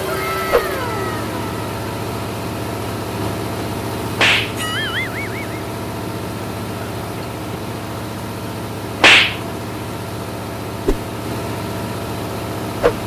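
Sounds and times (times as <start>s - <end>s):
diesel boat engine drone: 0.0s - 13.0s
loud short swoosh: 4.2s - 5.6s, 9.0s - 9.4s, 10.8s - 11.1s.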